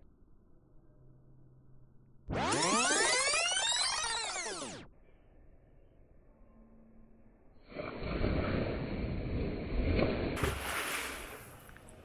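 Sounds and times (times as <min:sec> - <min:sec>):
swimmer diving into pool: 0:07.7 - 0:11.8.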